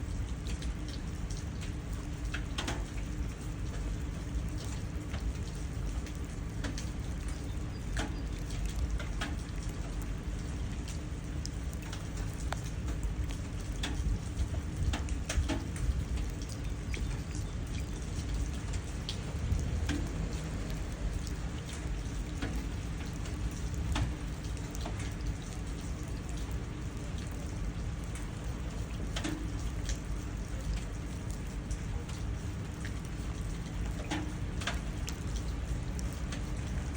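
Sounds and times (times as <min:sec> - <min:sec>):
rain splashing into puddles: 0:00.0 - 0:36.9
low rumble: 0:19.0 - 0:21.8.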